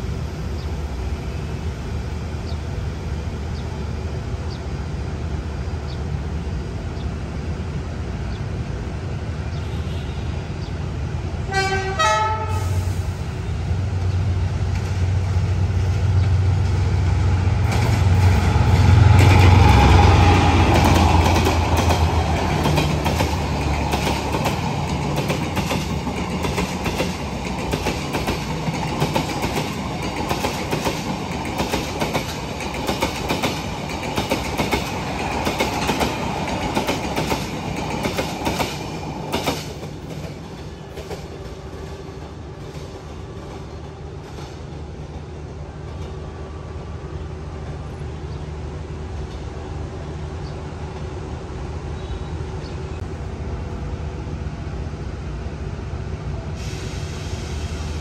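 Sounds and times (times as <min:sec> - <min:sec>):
locomotive engine rumbling: 0:00.0 - 0:58.0
wheels clacking over rail joints: 0:17.6 - 0:46.2.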